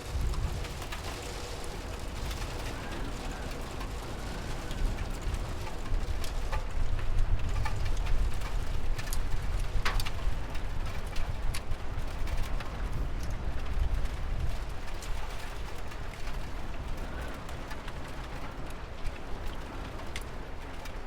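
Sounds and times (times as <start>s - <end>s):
low rumble: 0.0s - 4.8s
raindrops ticking: 0.0s - 21.0s
steady rain: 0.0s - 21.0s.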